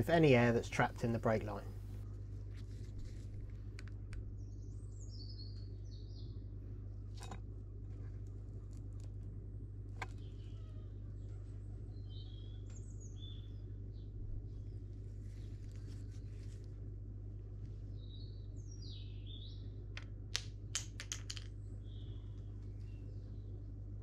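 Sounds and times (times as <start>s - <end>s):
steady low hum: 0.0s - 24.0s
small birds chirping: 4.1s - 7.0s, 10.1s - 16.9s, 17.5s - 20.1s, 21.6s - 23.8s.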